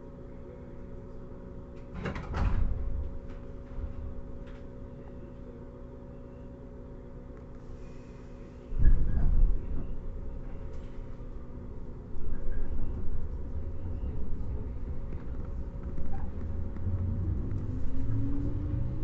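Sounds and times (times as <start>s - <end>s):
traction motor hum: 7.4s - 19.0s
train wheels rumbling: 8.7s - 19.0s.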